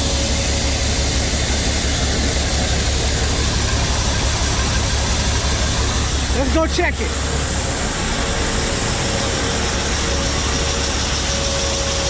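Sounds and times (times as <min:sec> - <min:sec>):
faint steady whine: 0:00.0 - 0:12.0
machinery engine drone: 0:00.0 - 0:12.0.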